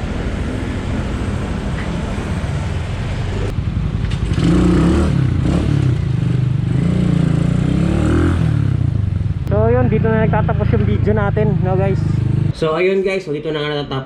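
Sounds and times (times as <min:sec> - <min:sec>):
motorcycle engine revving: 0:01.2 - 0:12.6.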